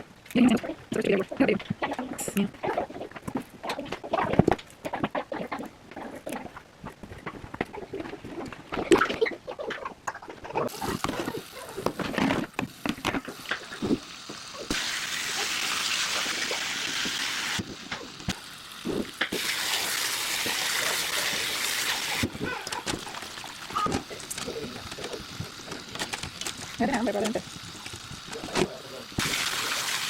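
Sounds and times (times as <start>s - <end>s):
kitchen tap running: 10.7s - 30.0s.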